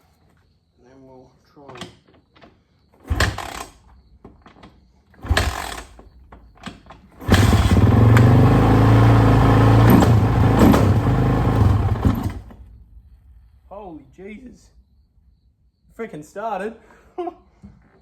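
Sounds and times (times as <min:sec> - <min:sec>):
dirt bike kick-start: 0:03.0 - 0:12.8
dirt bike engine running: 0:03.1 - 0:03.7, 0:05.2 - 0:06.0, 0:07.2 - 0:12.6.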